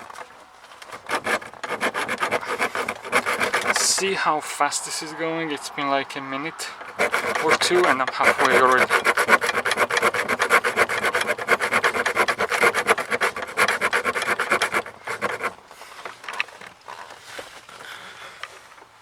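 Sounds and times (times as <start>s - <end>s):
hand saw rasping: 0.8s - 4.2s, 6.8s - 15.6s.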